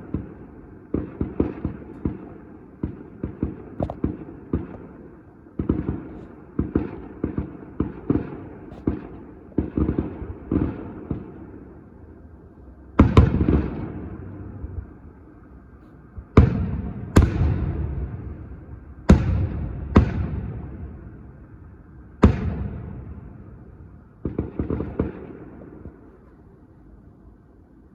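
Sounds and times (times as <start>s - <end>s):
loud booming firework bangs: 0.0s - 11.5s, 13.0s - 15.0s, 16.2s - 26.1s
fireworks bangs: 22.2s - 26.1s.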